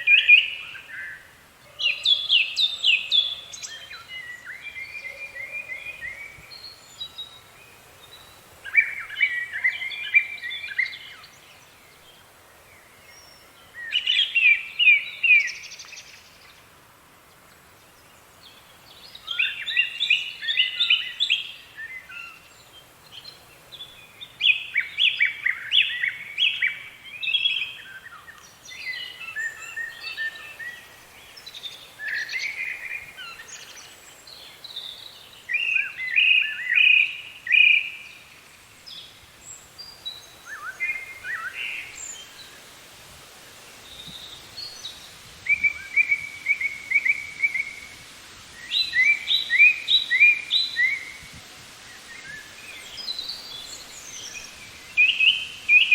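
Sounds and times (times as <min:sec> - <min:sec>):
songbirds chirping: 0:00.0 - 0:55.9.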